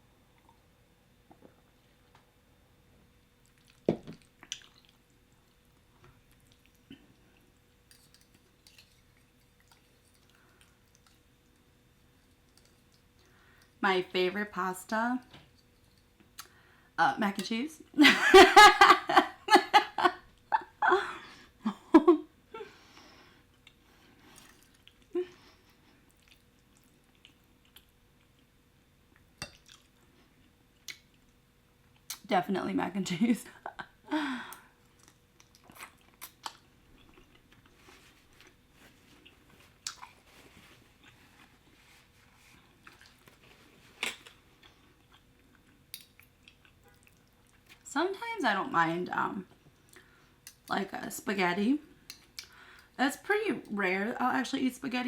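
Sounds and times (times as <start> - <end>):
soft chewing: 3.0 - 13.8, 22.9 - 32.2, 34.5 - 47.9, 49.5 - 50.7
person laughing: 18.0 - 22.7.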